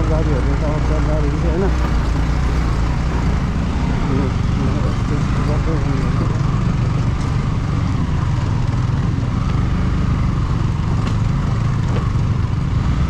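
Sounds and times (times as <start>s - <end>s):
motorcycle engine rumbling: 1.5s - 7.1s.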